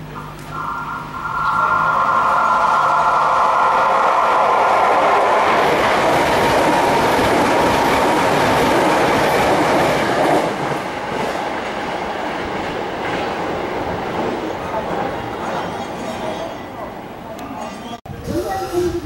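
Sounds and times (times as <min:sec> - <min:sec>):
train wheels clattering on rails: 0:03.6 - 0:16.5.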